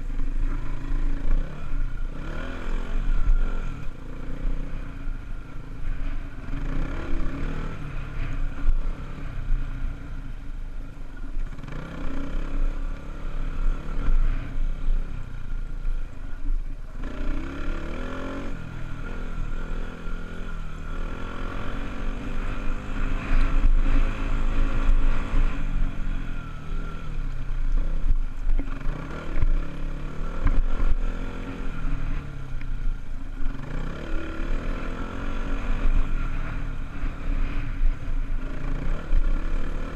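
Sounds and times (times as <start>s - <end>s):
dirt bike engine revving: 0.0s - 5.2s, 5.8s - 9.6s, 11.5s - 15.1s, 16.9s - 32.2s, 33.4s - 39.9s.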